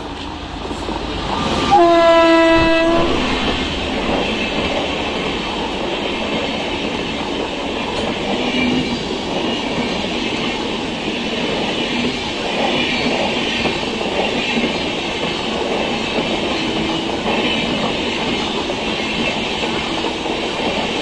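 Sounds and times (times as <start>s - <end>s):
train wheels clickety-clack: 0.0s - 21.0s
train horn blast: 1.6s - 4.5s.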